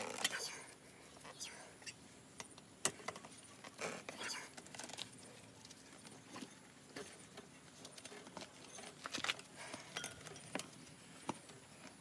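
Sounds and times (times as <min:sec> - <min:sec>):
metal tools clicking and knocking: 0:09.9 - 0:10.7.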